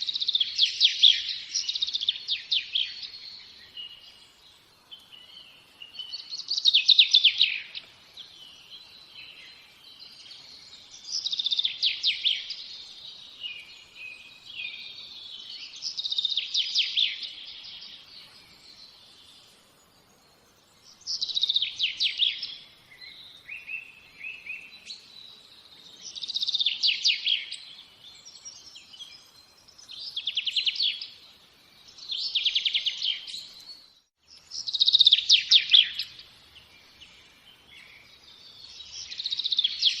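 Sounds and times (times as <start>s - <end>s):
soft bird chirps: 0.0s - 40.0s
songbird trilling: 5.2s - 8.7s, 34.6s - 36.2s.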